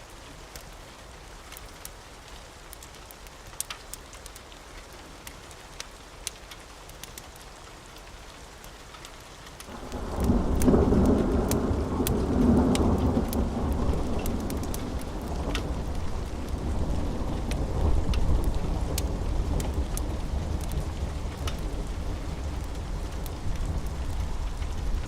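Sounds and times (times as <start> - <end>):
steady rain: 0.0 - 25.0
wood fire crackling: 1.4 - 25.0
low roll of thunder: 9.7 - 25.0.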